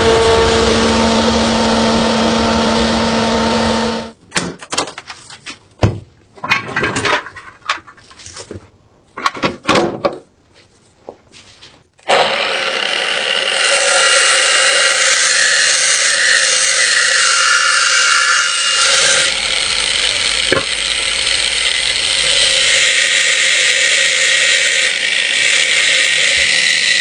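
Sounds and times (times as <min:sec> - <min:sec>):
power tool humming: 0:00.0 - 0:04.2, 0:12.1 - 0:27.0.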